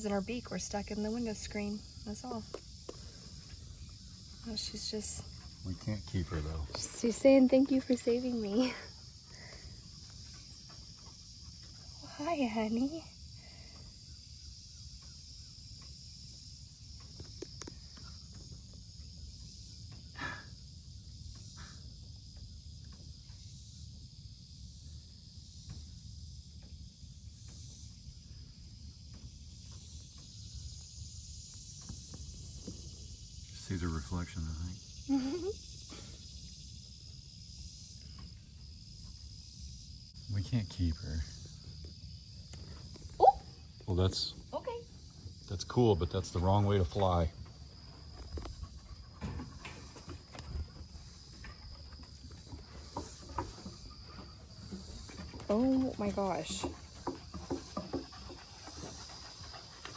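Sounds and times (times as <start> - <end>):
insect chorus: 0.0 - 59.9.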